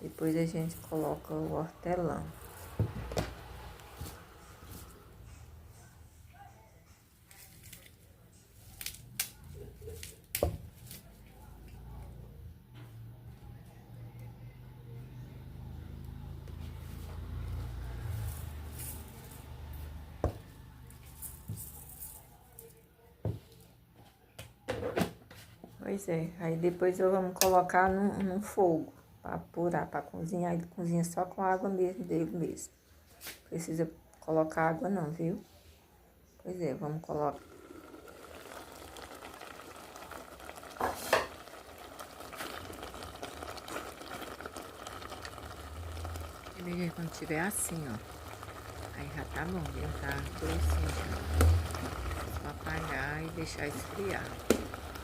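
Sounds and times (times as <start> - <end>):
syrup bubbling in a pot: 0.1 - 4.9, 14.1 - 21.1, 37.1 - 55.0.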